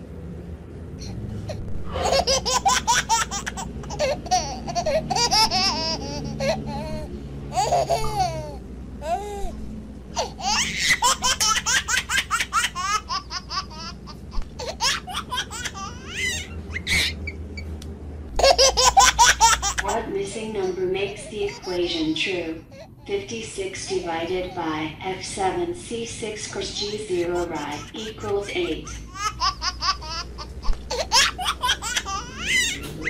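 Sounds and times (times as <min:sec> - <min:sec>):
high-pitched giggling: 0:01.5 - 0:17.4, 0:26.6 - 0:33.0.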